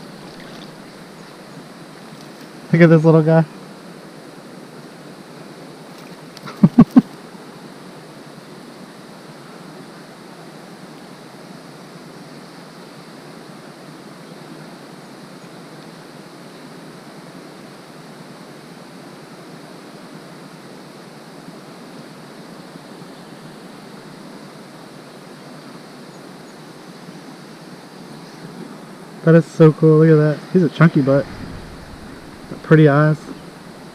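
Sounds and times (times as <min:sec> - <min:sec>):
river water flowing: 0:00.0 - 0:02.8, 0:29.8 - 0:33.9.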